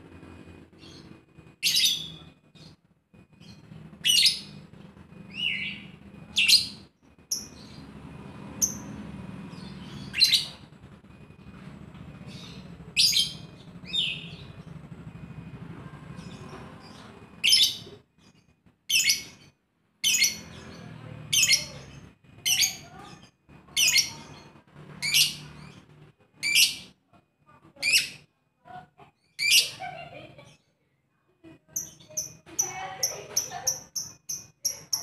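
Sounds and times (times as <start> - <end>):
bird rapid high chirps: 0.8 - 2.8, 5.3 - 8.0, 8.6 - 10.7, 12.2 - 14.8, 31.8 - 35.0.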